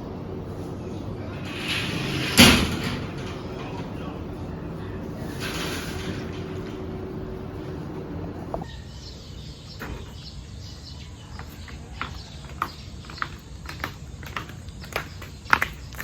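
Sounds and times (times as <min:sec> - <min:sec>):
steady hum: 0:00.0 - 0:08.7
bird chirping: 0:08.5 - 0:16.0.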